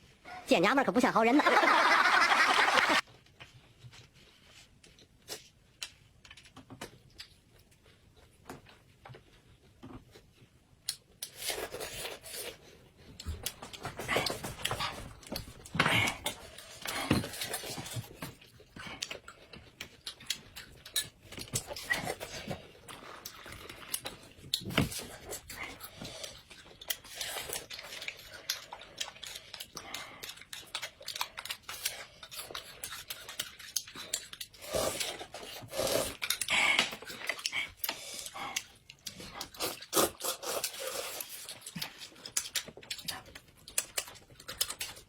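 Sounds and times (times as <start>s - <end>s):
chewing: 10.8s - 45.0s.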